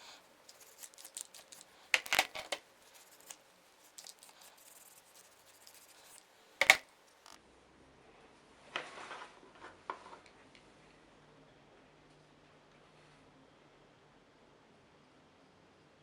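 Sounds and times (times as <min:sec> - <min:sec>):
light clicks and scrapes of tools: 0:00.0 - 0:07.4.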